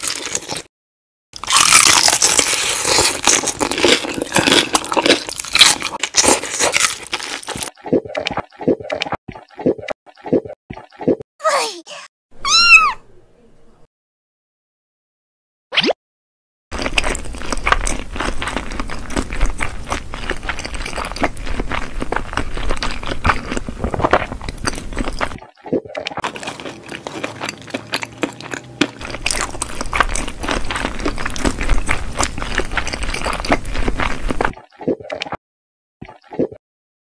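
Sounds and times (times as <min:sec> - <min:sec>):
wet chewing and crunching: 0:00.0 - 0:00.7, 0:01.4 - 0:09.6, 0:16.7 - 0:35.4.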